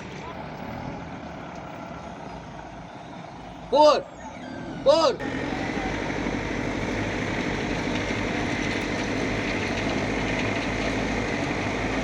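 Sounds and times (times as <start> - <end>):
heavy diesel engine running: 5.2 - 12.0.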